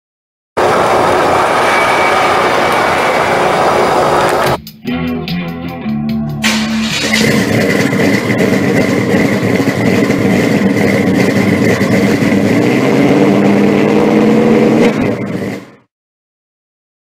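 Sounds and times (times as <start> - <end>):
car engine running: 0.6 - 4.6, 6.4 - 15.8
thin high whine: 0.6 - 4.6.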